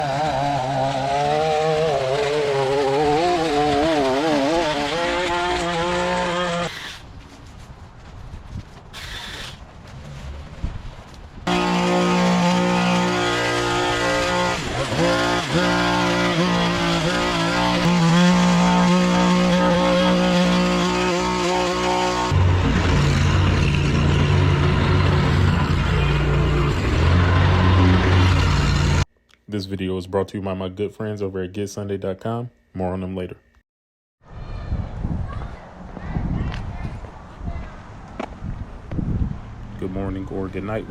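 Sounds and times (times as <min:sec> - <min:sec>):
small petrol engine wavering: 0:00.0 - 0:07.1, 0:11.4 - 0:29.1.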